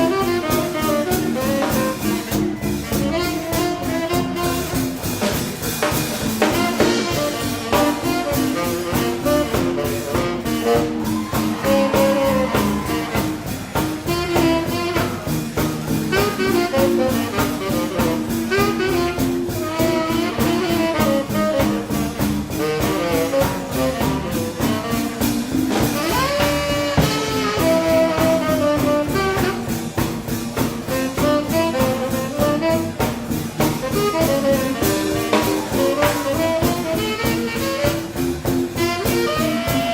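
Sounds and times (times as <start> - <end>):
drum kit beat: 0.0 - 39.9
saxophone and brass: 0.0 - 39.9.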